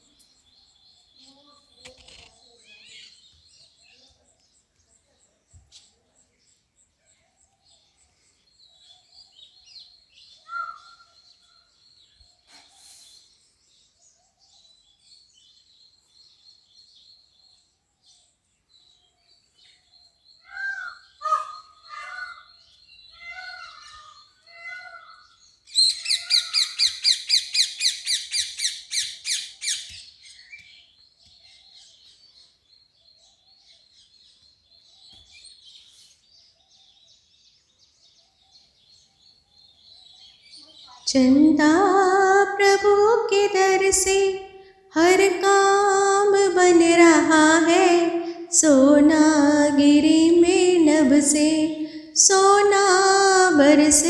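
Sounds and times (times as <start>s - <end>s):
rapid repeated bird calls: 0.0s - 42.9s
birds chirping: 0.0s - 54.0s
lower bird calls: 7.1s - 13.6s, 18.9s - 37.3s.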